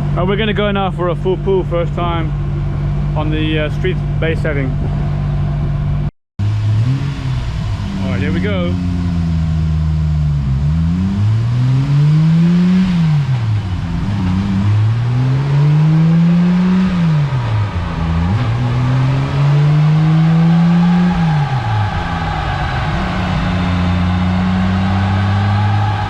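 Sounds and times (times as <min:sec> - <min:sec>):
turbocharged engine revving: 0:06.4 - 0:26.0.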